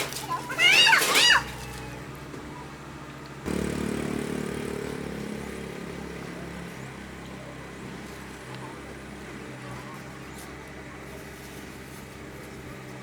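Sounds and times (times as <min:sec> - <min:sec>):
motor engine humming: 0:00.0 - 0:13.0.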